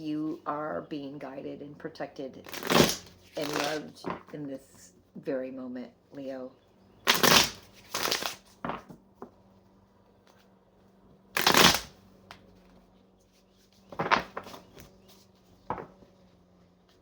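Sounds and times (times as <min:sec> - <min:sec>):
cards being shuffled: 0:02.4 - 0:04.3, 0:07.1 - 0:09.0, 0:11.4 - 0:11.9, 0:13.6 - 0:15.9.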